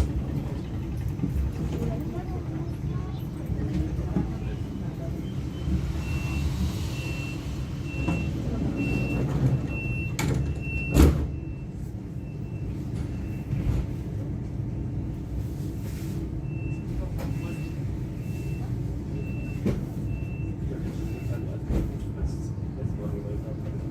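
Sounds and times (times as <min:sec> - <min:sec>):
train humming: 0:00.0 - 0:10.6
door warning beeps: 0:05.2 - 0:13.7, 0:16.4 - 0:21.6.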